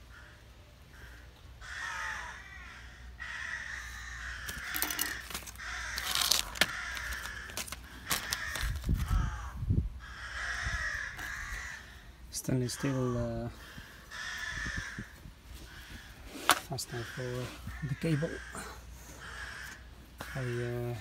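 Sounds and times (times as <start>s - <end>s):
bird calling: 0.0s - 21.0s
plastic bags crackling: 4.4s - 9.2s.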